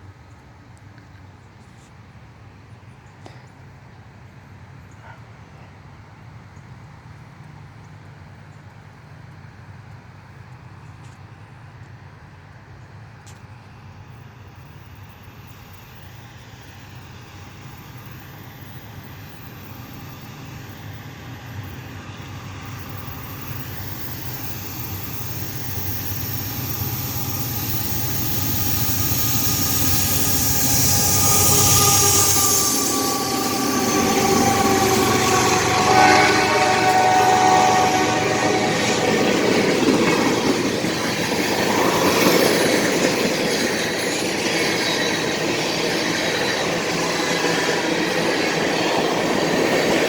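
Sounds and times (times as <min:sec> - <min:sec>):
freight train rumble: 0:02.2 - 0:50.0
high steady tones from horn or wheels: 0:23.9 - 0:40.0.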